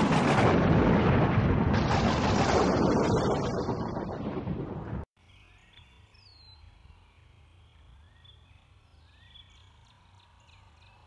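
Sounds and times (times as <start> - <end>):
songbird whistles and chirps: 5.2 - 11.0.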